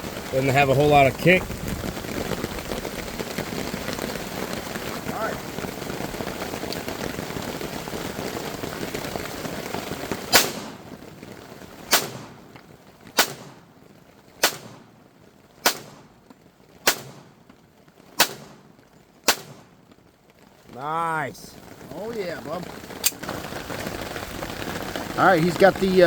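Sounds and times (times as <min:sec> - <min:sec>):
rain hissing: 0:00.0 - 0:26.0
pistol shots cracking: 0:10.3 - 0:10.9, 0:11.9 - 0:12.6, 0:13.2 - 0:13.7, 0:14.4 - 0:15.0, 0:15.6 - 0:16.2, 0:16.8 - 0:17.4, 0:18.2 - 0:19.8.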